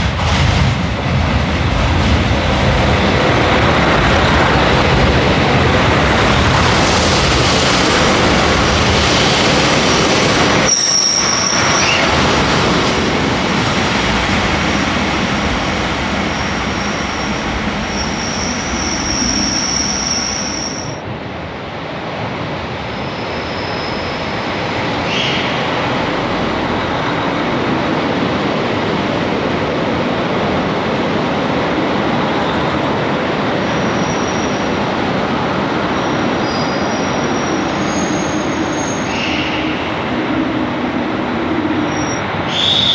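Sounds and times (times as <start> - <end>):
diesel train rumbling: 0.0 - 42.9
wheel squeals: 9.8 - 12.2, 16.2 - 21.0, 36.0 - 39.8, 41.9 - 42.9.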